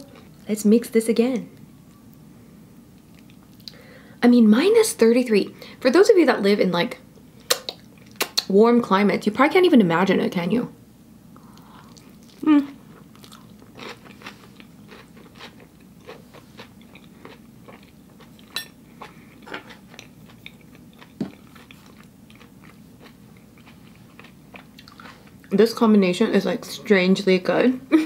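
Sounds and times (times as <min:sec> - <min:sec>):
wet mouth clicks: 0:07.5 - 0:08.5
person chewing food: 0:11.4 - 0:25.5.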